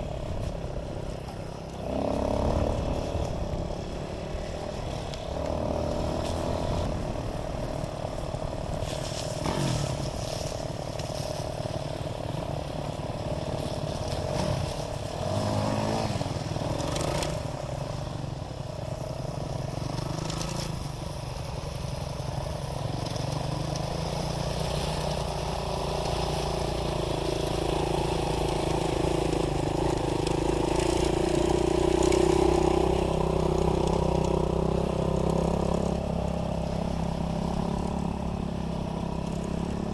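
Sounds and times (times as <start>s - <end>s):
dirt bike engine revving: 1.8s - 3.3s, 8.9s - 10.5s, 14.1s - 17.4s.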